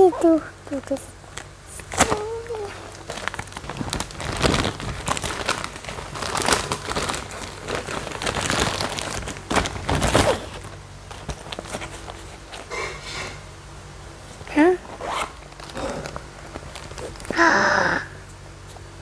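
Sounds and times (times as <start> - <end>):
wrapping paper crinkling and ripping: 0.8 - 12.7, 14.8 - 17.4.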